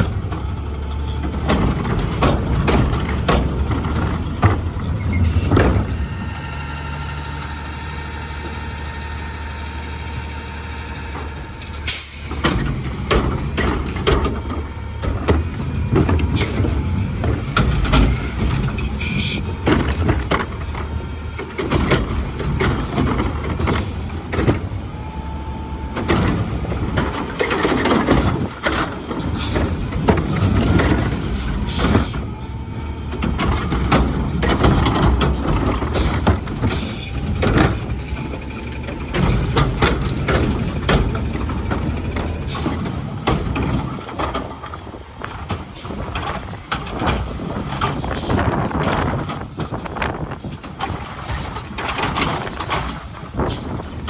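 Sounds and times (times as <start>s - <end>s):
metal clanks and bangs: 0.0s - 6.2s, 26.0s - 54.0s
diesel engine running: 0.0s - 54.0s
air brakes hissing: 11.7s - 12.5s, 30.9s - 32.2s.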